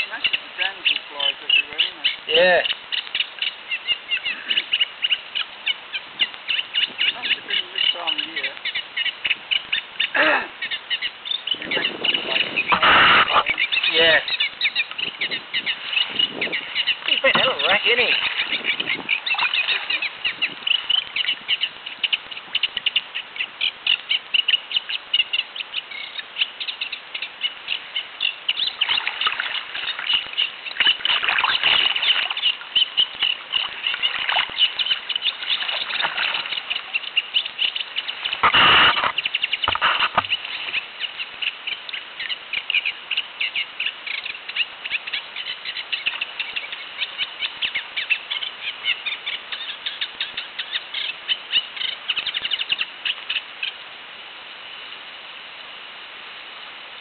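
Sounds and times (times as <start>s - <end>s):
warbler singing: 0.0s - 53.8s
brief loud noise: 38.4s - 40.2s.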